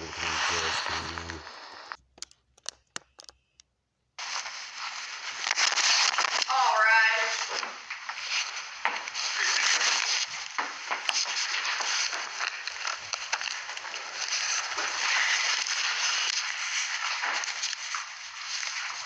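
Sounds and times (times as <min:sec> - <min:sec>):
microphone handling noise: 0:00.0 - 0:03.6
sharp clicks: 0:00.6 - 0:03.7.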